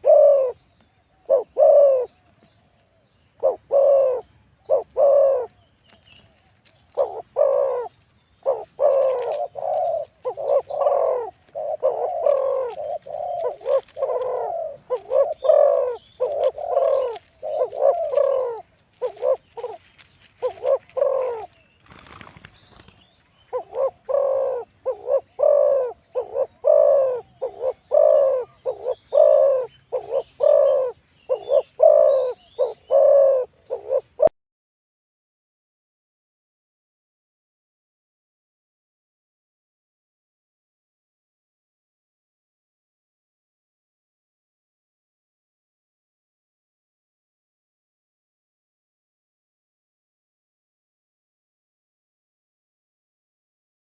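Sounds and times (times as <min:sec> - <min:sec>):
doves cooing: 0:00.0 - 0:34.3.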